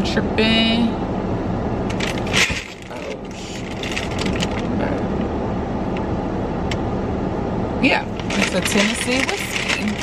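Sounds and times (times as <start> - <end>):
car engine idling: 1.3 - 10.0
rustling handling noises: 1.9 - 4.7, 8.1 - 10.0.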